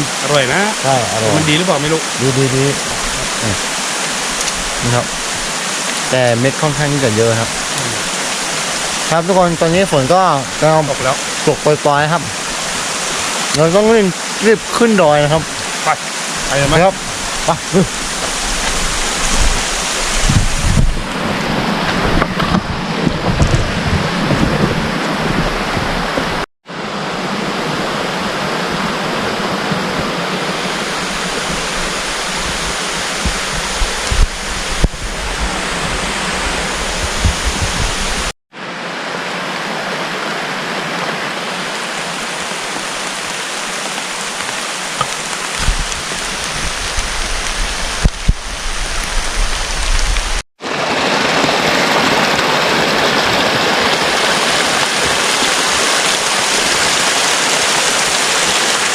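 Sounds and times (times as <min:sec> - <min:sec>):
rain falling through forest: 0:00.0 - 0:58.9
low rumble and bumps: 0:18.0 - 0:26.5, 0:32.4 - 0:38.3, 0:45.0 - 0:50.4.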